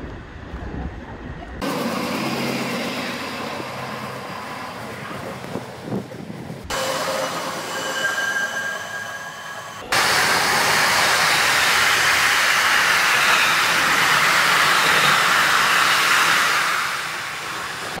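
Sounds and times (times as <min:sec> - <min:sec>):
train wheels hissing on rail: 0:06.7 - 0:18.0.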